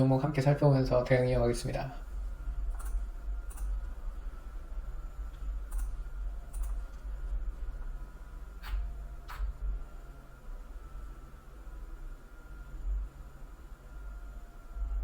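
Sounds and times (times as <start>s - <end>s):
low electrical hum: 0.0s - 15.0s
computer mouse clicks: 2.7s - 3.8s, 5.3s - 7.0s, 8.6s - 9.5s.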